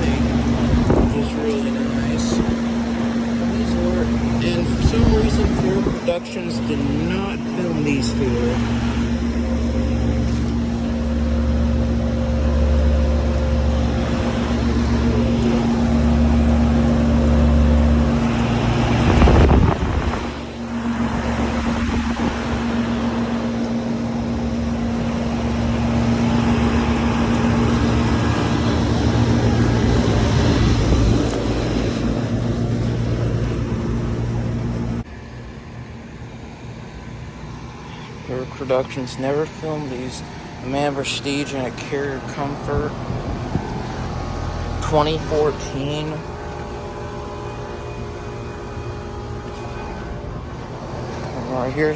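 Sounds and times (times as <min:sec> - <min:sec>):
compressor hum: 0:00.0 - 0:51.9
condenser fans whooshing: 0:00.0 - 0:51.9.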